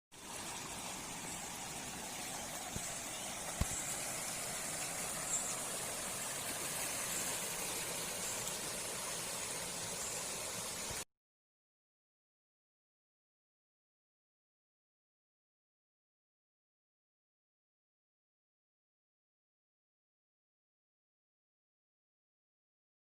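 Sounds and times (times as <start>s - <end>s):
flowing water rushing: 0.1s - 11.0s.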